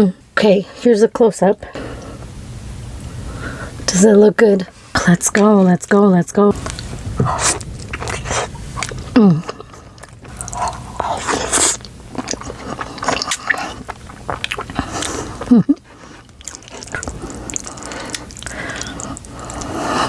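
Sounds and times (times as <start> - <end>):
slurping and chewing noodles: 6.6 - 20.0.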